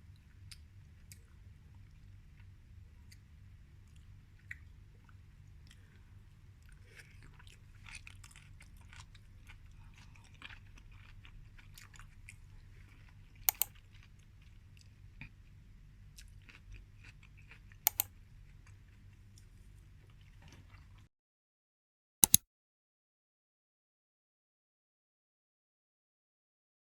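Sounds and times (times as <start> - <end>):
steady low hum: 0.0 - 20.8
close-up chewing: 0.3 - 21.1
sharp double clicks: 13.5 - 13.7, 17.9 - 18.1.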